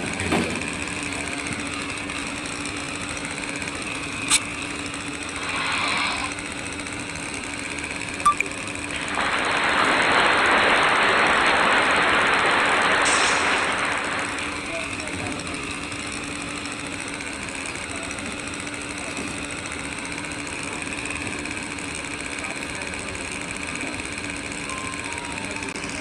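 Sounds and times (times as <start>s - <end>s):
machine running with low hum: 0.0s - 26.0s
loud steady hiss: 9.1s - 14.6s.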